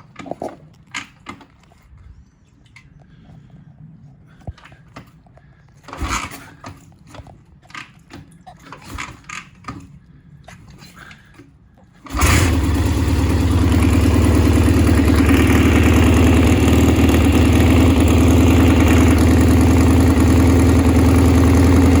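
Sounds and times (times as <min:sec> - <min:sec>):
motorcycle engine starting and idling: 0:04.5 - 0:22.0.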